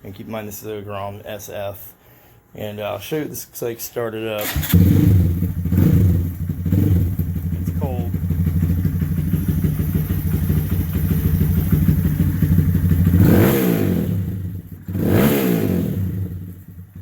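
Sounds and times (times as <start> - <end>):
motorcycle engine idling and revving: 4.4 - 17.0.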